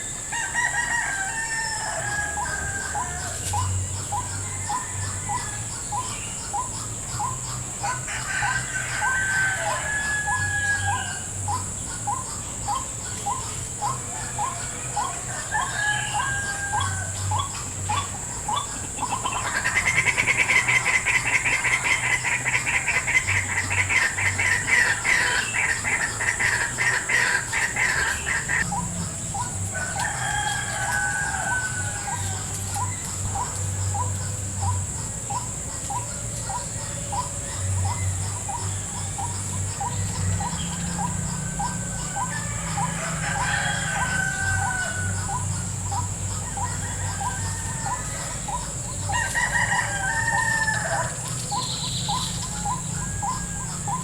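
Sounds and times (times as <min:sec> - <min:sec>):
bird harsh chattering: 0:18.0 - 0:28.8.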